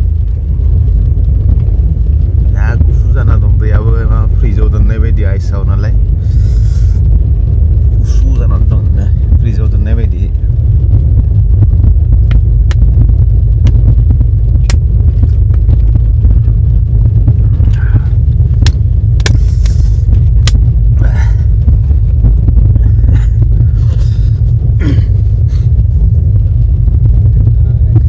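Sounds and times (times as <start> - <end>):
train rumbling: 0.0 - 28.0
sharp clicks and knocks: 14.6 - 15.8, 18.6 - 19.8.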